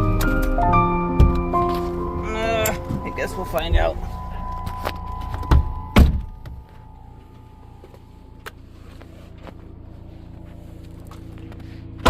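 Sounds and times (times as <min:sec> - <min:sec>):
vehicle door opening and shutting: 0:00.0 - 0:06.7
low hum: 0:00.0 - 0:12.0.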